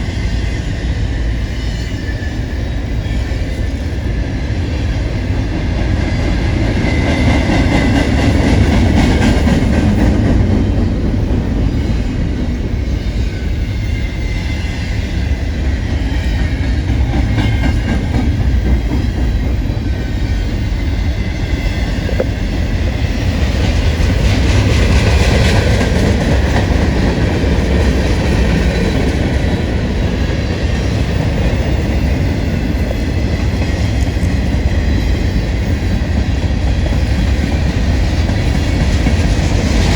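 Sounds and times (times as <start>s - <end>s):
freight train wheels clattering: 4.6s - 39.9s.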